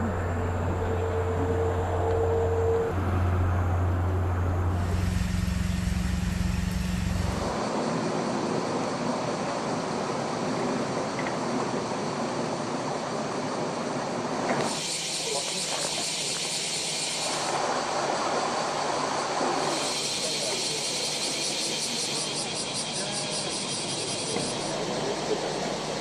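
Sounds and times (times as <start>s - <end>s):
low motor hum: 0.0s - 7.6s.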